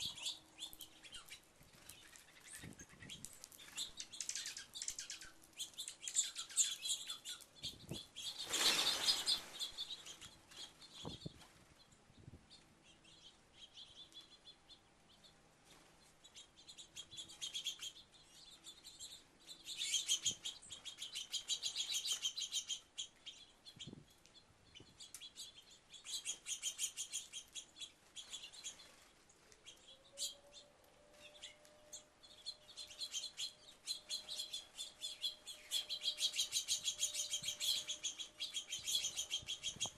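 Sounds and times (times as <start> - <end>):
small birds chirping: 0.0 - 39.9
rush of wingbeats: 8.4 - 9.7.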